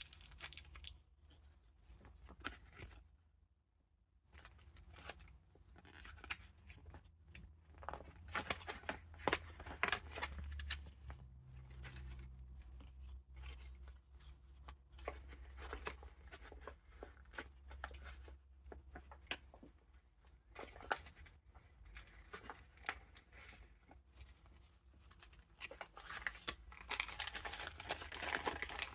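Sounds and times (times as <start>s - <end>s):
paper pages rustling: 20.4s - 28.9s.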